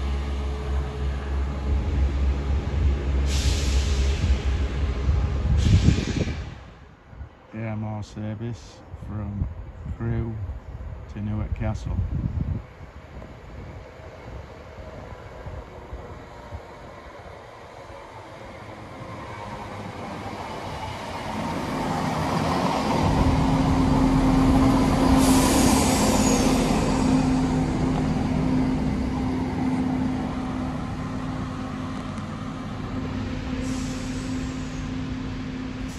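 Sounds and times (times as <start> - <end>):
train engine hum: 0.0 - 35.9
train wheels rolling: 12.9 - 35.9.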